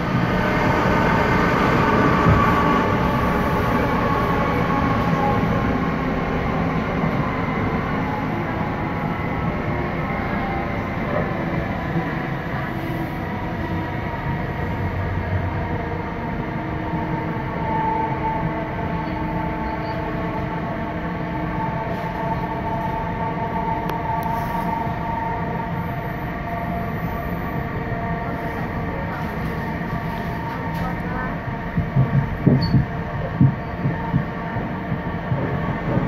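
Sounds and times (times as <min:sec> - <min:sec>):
train wheels rumbling on track: 0:00.0 - 0:36.0.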